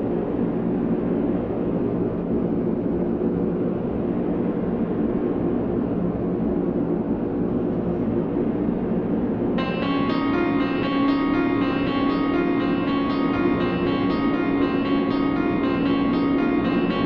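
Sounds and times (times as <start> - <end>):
electronic noise drone: 9.6 - 17.0.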